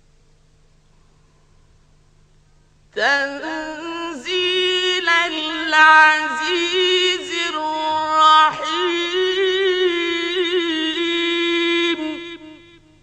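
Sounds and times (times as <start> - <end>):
man reciting in melodic chant: 3.0 - 13.0.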